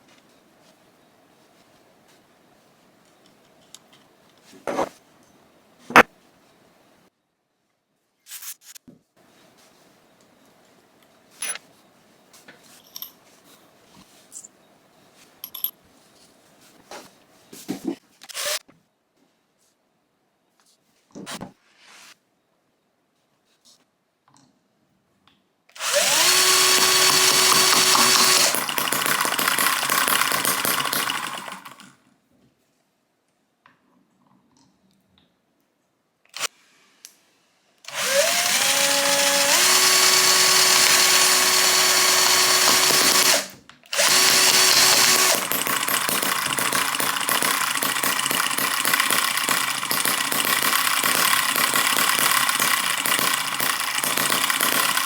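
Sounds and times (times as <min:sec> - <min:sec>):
small engine running: 0:25.8 - 0:31.8, 0:37.9 - 0:55.0.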